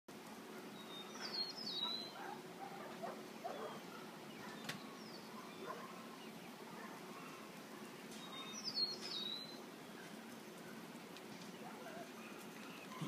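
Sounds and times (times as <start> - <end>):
faint outdoor background: 0.1 - 13.0
small bird chirping: 0.8 - 2.2, 8.1 - 10.1.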